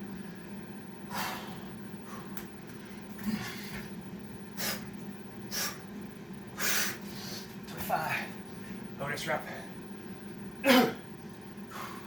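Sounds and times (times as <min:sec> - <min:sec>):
man breathing hard: 0:01.1 - 0:02.4, 0:05.5 - 0:05.9, 0:11.6 - 0:12.0.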